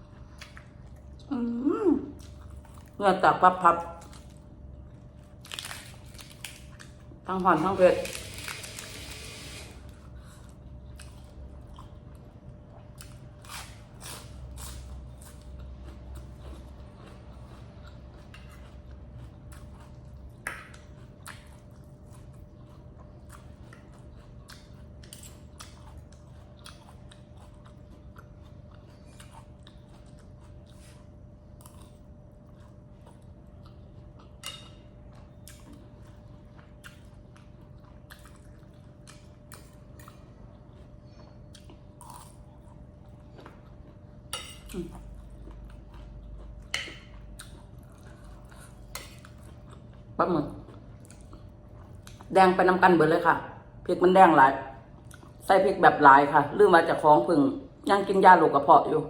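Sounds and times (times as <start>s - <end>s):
person chewing food: 0.0s - 1.3s, 2.2s - 3.0s, 8.2s - 52.3s, 54.8s - 55.4s
steady low hum: 0.0s - 59.0s.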